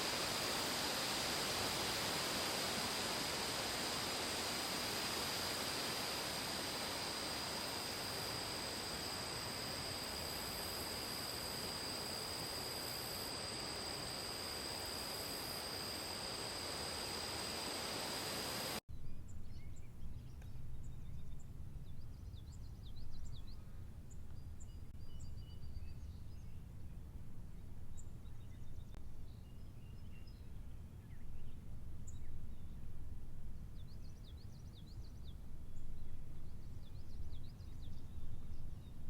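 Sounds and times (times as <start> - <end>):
hiss: 0.0 - 18.8.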